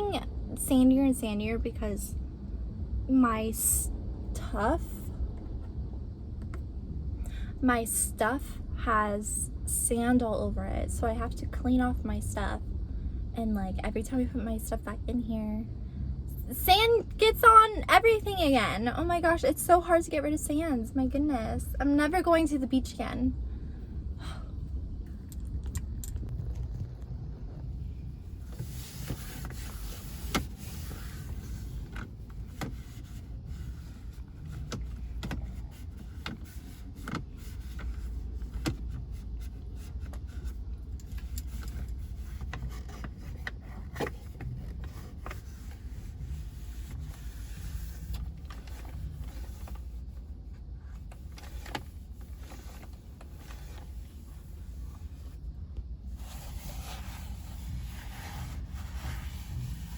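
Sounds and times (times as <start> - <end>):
wind rumbling on microphone: 23.3 - 36.2.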